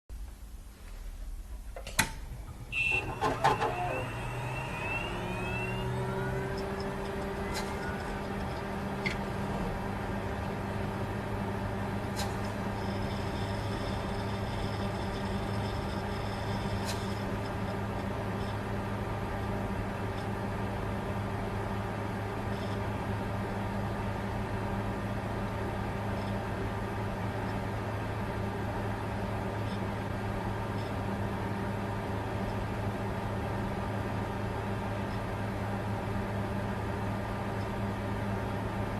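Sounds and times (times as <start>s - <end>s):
faint rising whine: 0.2s - 17.9s
computer fan whirring: 0.2s - 38.9s
computer machine whir: 2.4s - 11.7s, 12.4s - 20.3s.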